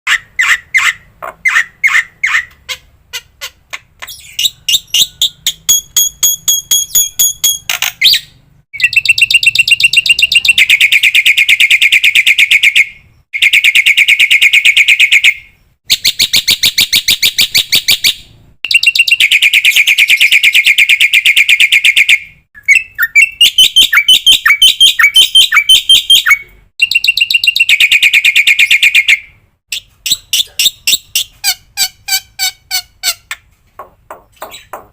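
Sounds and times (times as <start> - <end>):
bird chip notes: 4.1 - 8.0
high bird whistles: 6.7 - 31.3
fast chattering bird trills: 8.8 - 12.7, 29.8 - 33.3.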